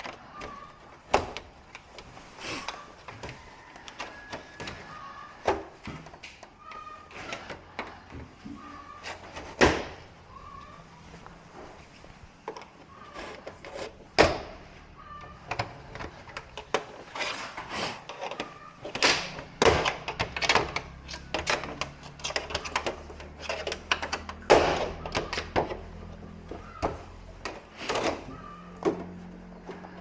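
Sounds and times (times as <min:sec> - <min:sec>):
tools and hard parts rattling: 0:11.1 - 0:30.0.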